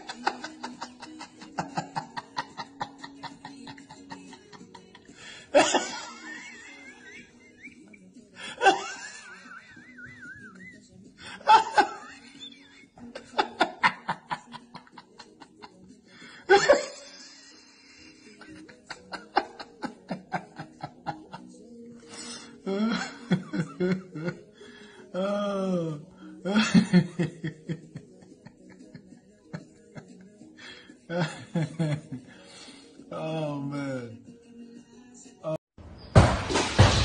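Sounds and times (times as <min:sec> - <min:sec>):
person laughing hard: 0:00.0 - 0:15.8, 0:16.4 - 0:21.5, 0:22.6 - 0:24.4, 0:26.5 - 0:30.2, 0:31.1 - 0:32.2.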